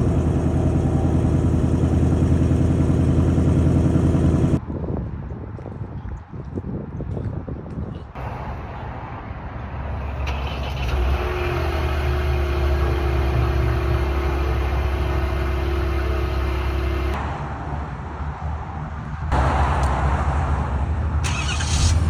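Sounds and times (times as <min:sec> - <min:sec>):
engine idling with whine: 0:00.0 - 0:04.6, 0:10.2 - 0:17.2.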